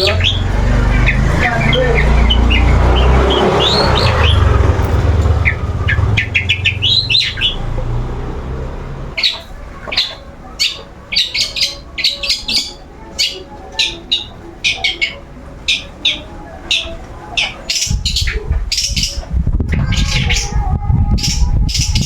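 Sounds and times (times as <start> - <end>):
low rumble: 0.0 - 9.2
shrike calling: 0.0 - 22.0.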